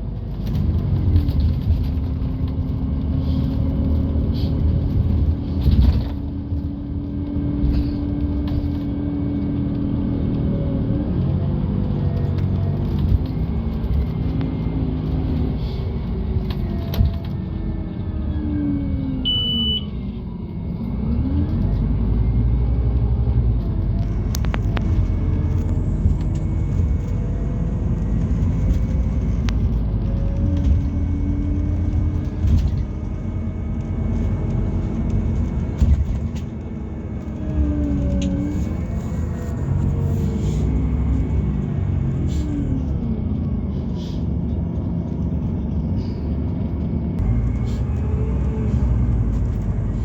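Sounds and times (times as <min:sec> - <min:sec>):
bus engine rumble with whine: 0:00.0 - 0:50.0
brief high beep: 0:19.3 - 0:20.0.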